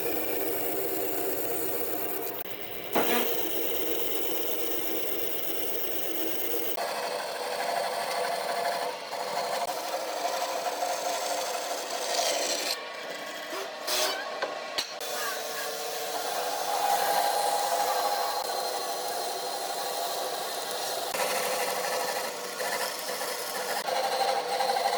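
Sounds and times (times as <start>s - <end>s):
machine humming: 0.0s - 6.8s
tool scraping along wood: 1.0s - 6.8s, 18.4s - 24.9s.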